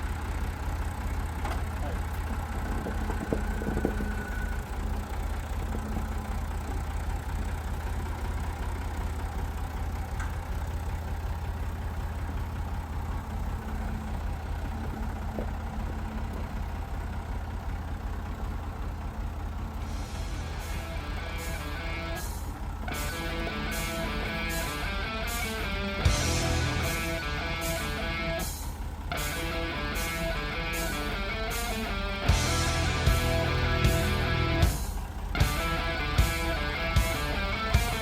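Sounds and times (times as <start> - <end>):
tractor engine idling: 0.0 - 38.0.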